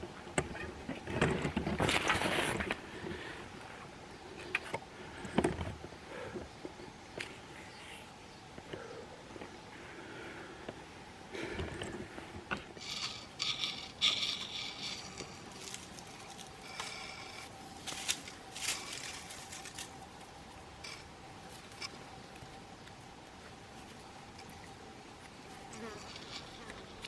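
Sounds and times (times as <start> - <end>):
faint steady hum: 0.0 - 27.0
rustling and scraping: 0.6 - 3.3, 11.6 - 22.6, 23.8 - 27.0.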